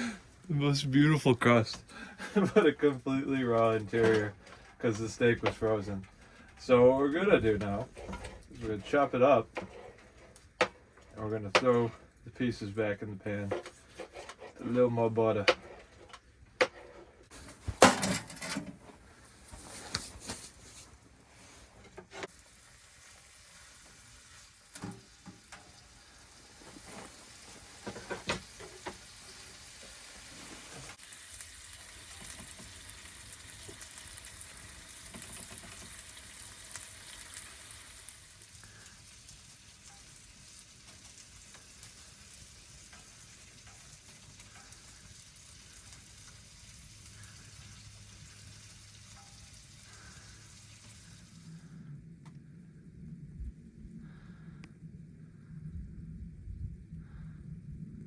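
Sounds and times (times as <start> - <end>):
meat sizzling in a pan: 22.2 - 51.5.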